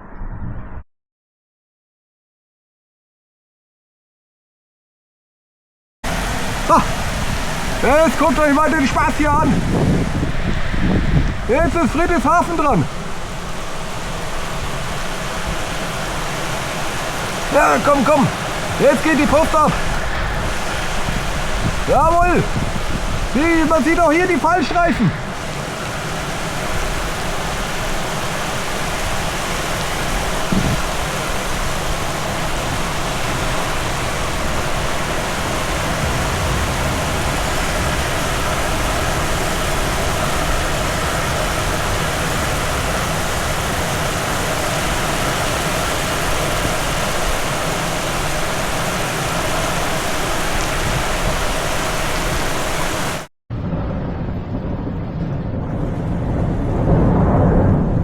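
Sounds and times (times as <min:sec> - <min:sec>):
heavy rain hiss: 0:06.1 - 0:53.3
low rumble of thunder: 0:09.2 - 0:17.6, 0:18.3 - 0:23.9, 0:25.1 - 0:47.2, 0:53.5 - 0:58.0.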